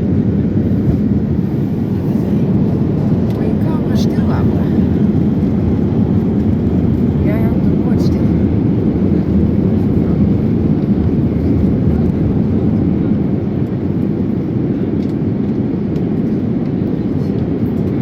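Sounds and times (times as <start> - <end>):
airliner cabin engine rumble: 0.0 - 18.0.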